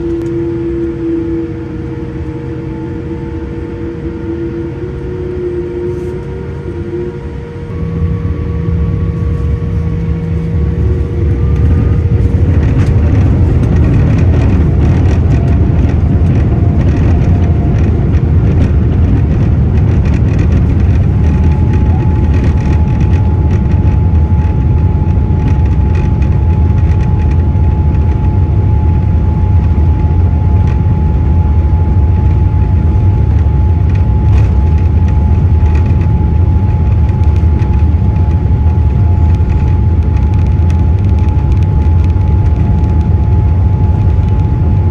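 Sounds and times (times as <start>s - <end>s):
steady high tone: 0.0s - 25.3s
jet engines deep rumble: 0.0s - 44.9s.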